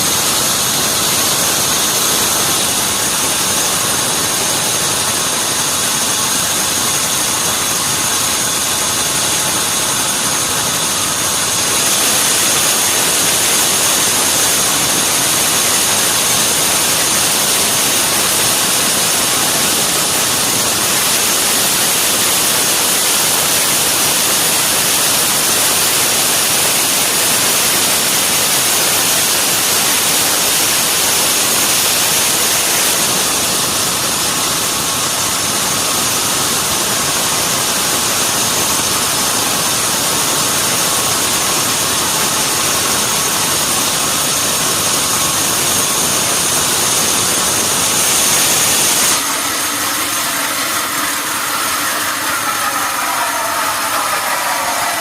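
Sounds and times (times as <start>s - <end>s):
sawmill machinery whining: 0.0s - 55.0s.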